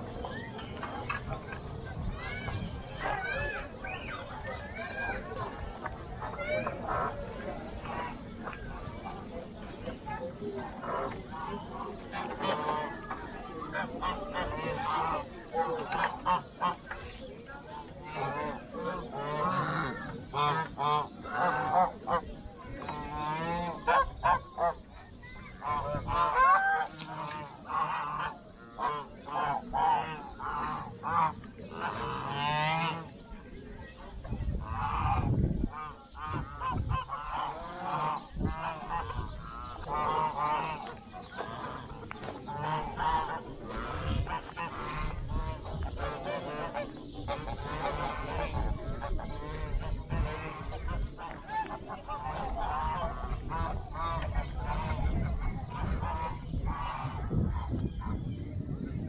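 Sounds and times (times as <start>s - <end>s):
birds calling: 0.0s - 59.0s.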